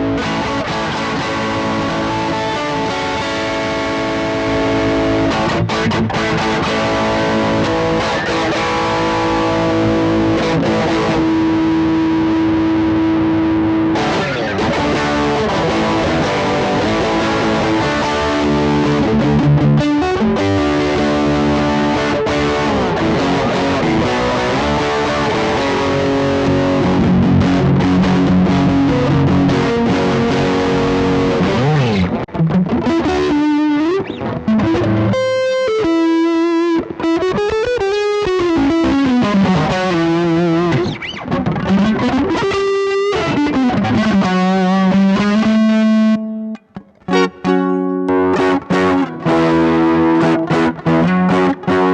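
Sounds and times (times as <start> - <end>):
overdriven electric guitar: 0.0 - 51.9.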